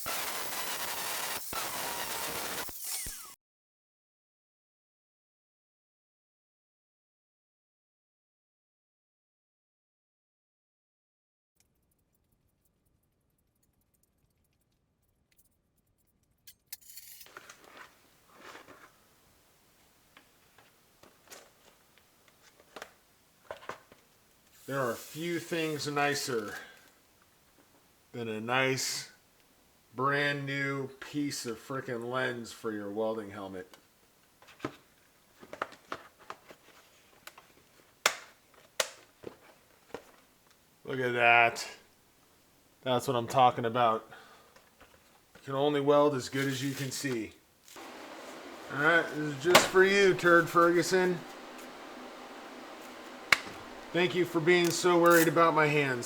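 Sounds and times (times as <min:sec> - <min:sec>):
rustling: 0:16.8 - 0:27.8, 0:46.1 - 0:56.0
plastic helmet clicks and taps: 0:38.0 - 0:39.1, 0:53.3 - 0:53.6
sharp plastic snaps: 0:38.0 - 0:39.1, 0:53.3 - 0:53.8
sharp click: 0:53.3 - 0:53.6.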